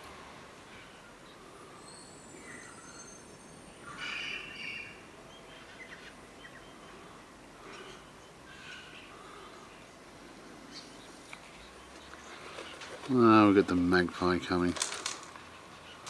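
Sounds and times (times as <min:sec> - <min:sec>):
faint background hiss: 0:00.0 - 0:16.0
birds whistling and chirping: 0:00.8 - 0:09.9.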